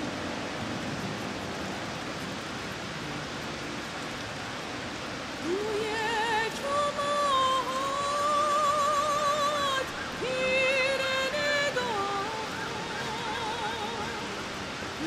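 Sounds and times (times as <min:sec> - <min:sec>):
heavy rain hissing: 0:00.0 - 0:15.0
person singing with vibrato: 0:05.4 - 0:15.0.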